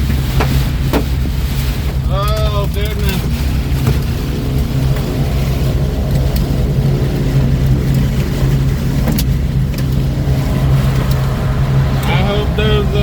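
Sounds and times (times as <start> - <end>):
hail ticking on vehicle: 0.0 - 10.1
steady low hum: 0.0 - 13.0
wind buffeting truck cab: 0.0 - 13.0.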